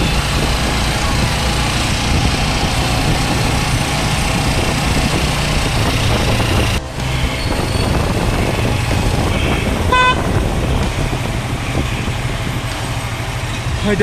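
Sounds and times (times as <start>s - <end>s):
motorcycle engine running: 0.0s - 14.0s
road noise: 0.0s - 14.0s
wind rushing: 0.0s - 14.0s.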